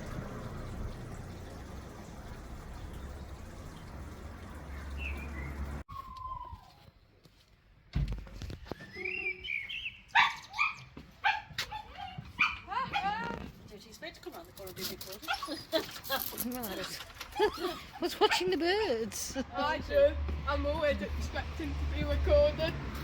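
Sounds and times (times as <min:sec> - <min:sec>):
bird chirp: 0:04.5 - 0:06.7, 0:08.7 - 0:10.7
small dog whining and yipping: 0:05.9 - 0:06.8, 0:10.1 - 0:13.2, 0:17.3 - 0:18.1.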